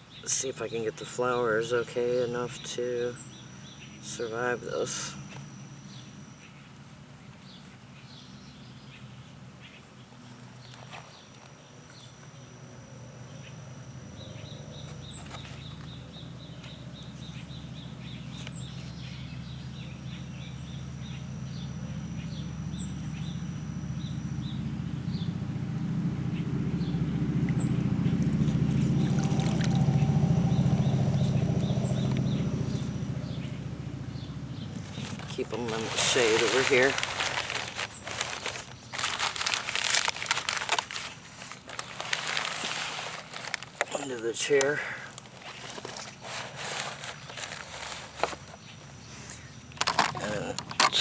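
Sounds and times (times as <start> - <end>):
bird calls: 14.2 - 25.4, 26.3 - 51.0
low drone: 19.1 - 43.6
thin high whines: 27.5 - 33.7, 34.5 - 49.4.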